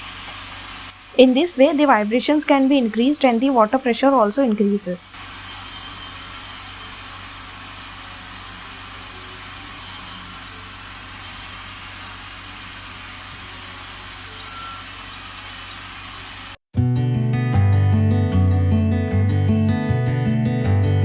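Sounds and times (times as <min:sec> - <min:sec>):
dental scaler hiss and whine: 0:00.0 - 0:16.6.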